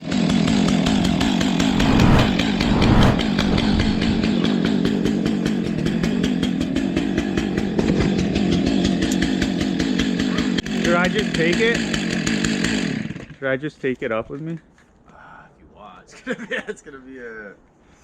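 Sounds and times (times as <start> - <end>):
chainsaw running at high revs: 6.0 - 13.4.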